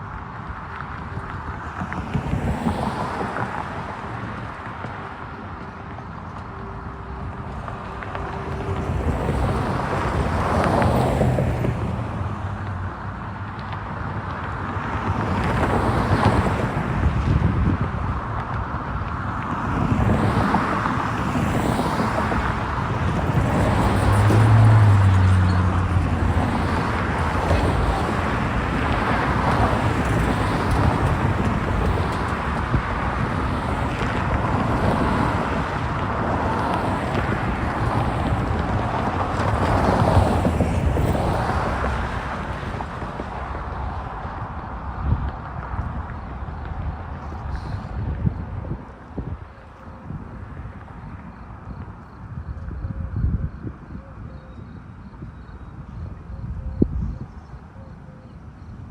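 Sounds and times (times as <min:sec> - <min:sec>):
cars passing: 0:00.0 - 0:58.9
wind on microphone: 0:00.6 - 0:12.7, 0:14.7 - 0:58.9.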